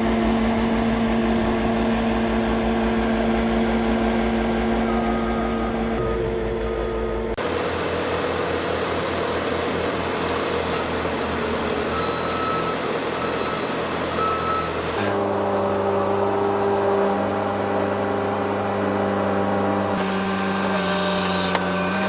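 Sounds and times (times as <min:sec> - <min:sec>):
heavy diesel machinery running: 0:00.0 - 0:22.0
reversing alarm beeping: 0:04.7 - 0:07.4, 0:10.7 - 0:15.9.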